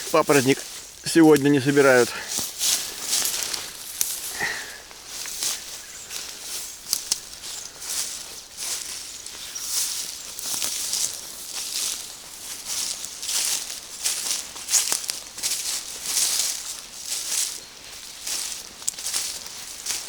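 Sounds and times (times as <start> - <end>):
footsteps through undergrowth: 0.0 - 20.0
leaves and stems rustling: 0.0 - 20.0
twig snapping: 2.4 - 4.3, 6.8 - 7.5.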